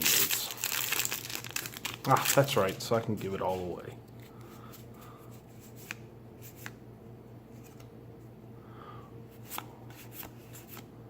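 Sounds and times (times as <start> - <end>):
cards sliding: 3.5 - 6.8, 7.5 - 7.9, 9.4 - 10.9.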